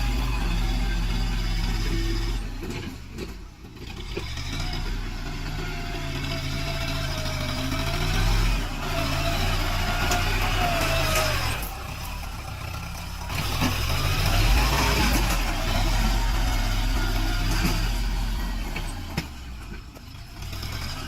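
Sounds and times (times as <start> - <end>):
tractor diesel engine working: 0.0 - 21.0.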